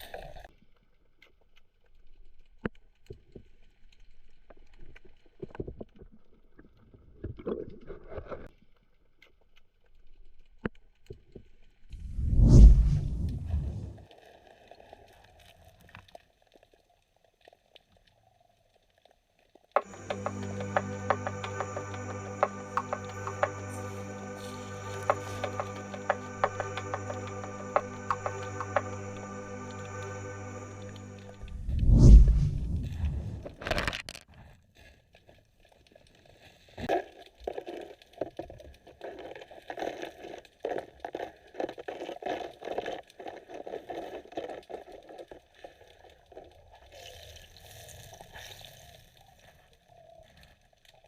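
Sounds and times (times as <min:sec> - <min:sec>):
underwater clicks and crackles: 0:00.0 - 0:11.7, 0:35.1 - 0:51.0
background music: 0:19.8 - 0:32.8.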